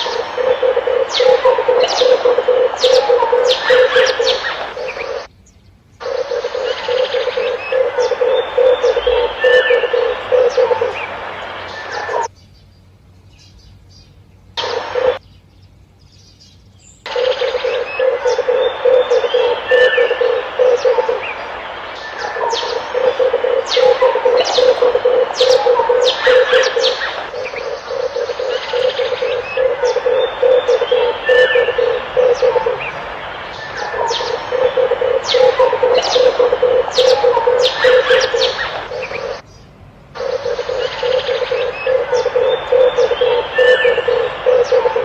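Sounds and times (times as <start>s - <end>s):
doves cooing: 0.0s - 5.3s, 6.0s - 12.3s, 14.6s - 15.2s, 17.1s - 39.4s, 40.2s - 45.0s
high bird chirps: 0.0s - 5.3s, 17.0s - 39.4s.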